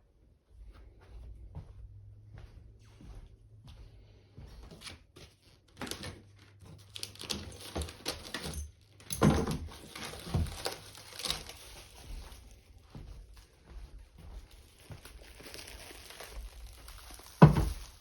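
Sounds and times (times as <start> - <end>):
packaging crinkling: 5.7 - 13.6, 14.4 - 18.0
knocks and bumps: 17.3 - 18.0.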